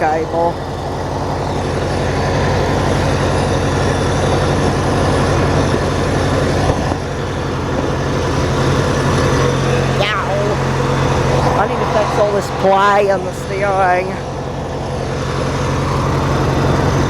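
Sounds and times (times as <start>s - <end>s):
small gasoline engine running: 0.0s - 17.0s.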